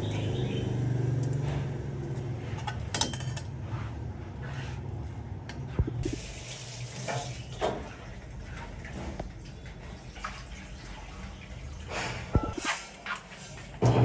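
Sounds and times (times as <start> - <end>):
tap water running into sink: 6.0 - 12.6.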